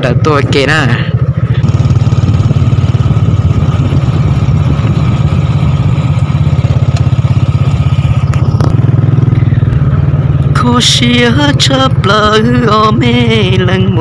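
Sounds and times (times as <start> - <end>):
small motorcycle engine running: 0.0 - 14.0.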